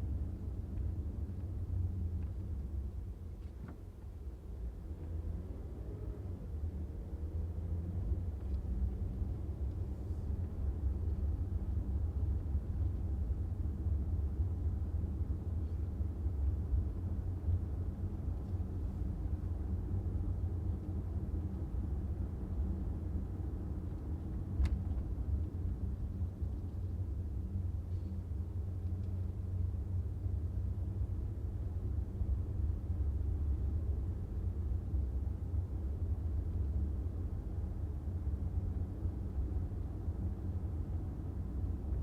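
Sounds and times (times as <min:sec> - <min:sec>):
car engine and tyre rumble: 0:00.0 - 0:42.0.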